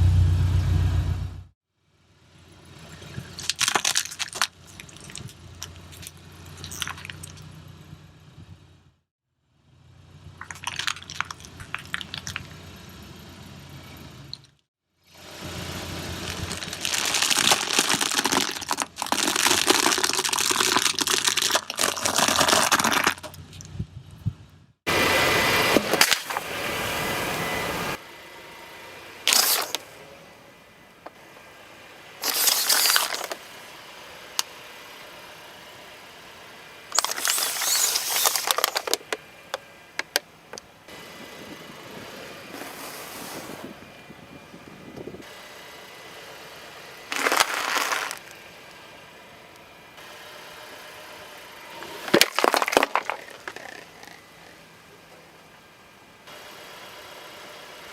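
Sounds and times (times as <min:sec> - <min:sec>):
low engine hum: 0:00.0 - 0:32.3, 0:33.2 - 0:57.9
crackling and crunching: 0:02.9 - 0:07.5, 0:10.4 - 0:12.6, 0:16.2 - 0:23.8, 0:29.3 - 0:29.8, 0:32.2 - 0:33.4, 0:36.9 - 0:40.2, 0:47.1 - 0:48.4, 0:51.8 - 0:54.5.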